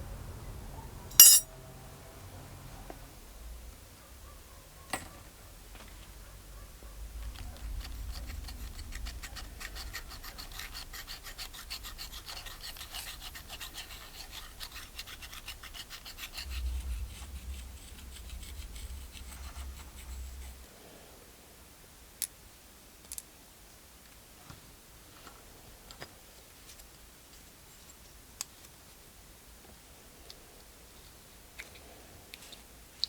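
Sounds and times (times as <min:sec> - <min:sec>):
scraping and rubbing strokes: 0:07.8 - 0:20.7.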